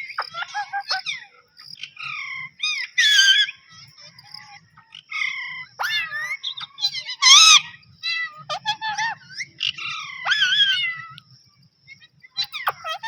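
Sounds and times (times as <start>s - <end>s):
parrot squawking: 0.2s - 1.2s, 2.7s - 3.5s, 5.8s - 11.1s, 12.4s - 13.0s.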